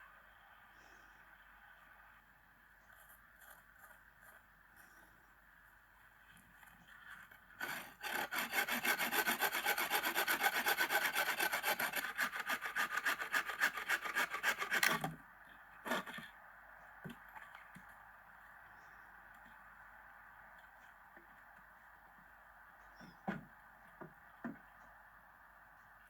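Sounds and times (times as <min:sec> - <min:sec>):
hand saw cutting wood: 0:07.1 - 0:15.2, 0:15.8 - 0:16.3.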